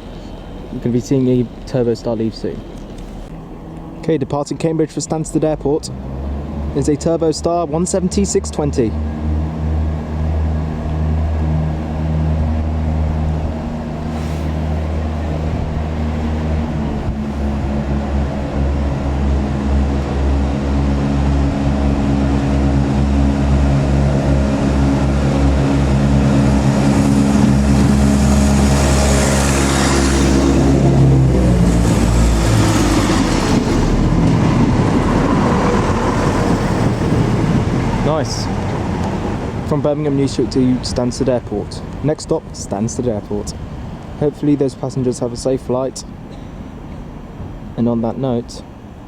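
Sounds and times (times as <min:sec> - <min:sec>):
diesel train engines droning: 0:00.0 - 0:49.0
rush of passing train: 0:05.8 - 0:42.0, 0:43.5 - 0:44.3.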